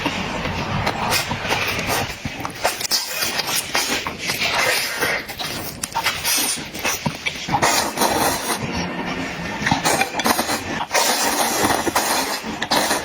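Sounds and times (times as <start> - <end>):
chewing and slurping: 0.0 - 13.0.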